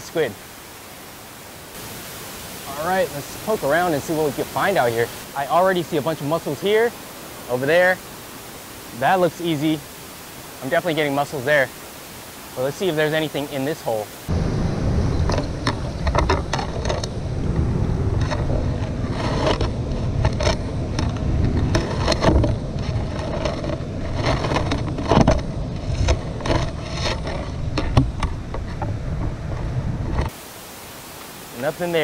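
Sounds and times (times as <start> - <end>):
low microphone rumble: 14.2 - 30.2.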